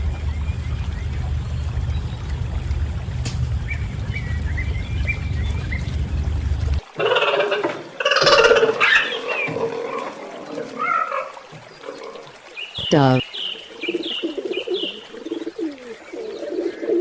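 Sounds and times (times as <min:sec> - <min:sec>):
wind rumble: 0:00.0 - 0:06.9.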